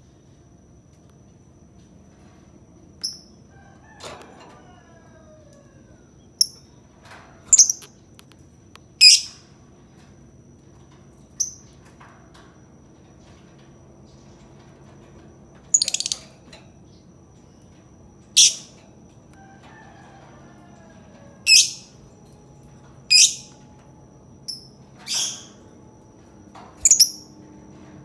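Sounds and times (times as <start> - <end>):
lovebird chirping: 15.8 - 16.2, 18.4 - 18.7, 23.1 - 23.5, 26.8 - 27.2.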